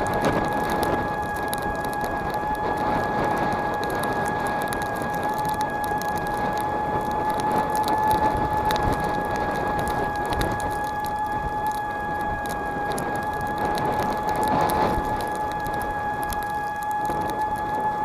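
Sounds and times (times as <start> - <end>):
electric motor whine: 0.0 - 18.0.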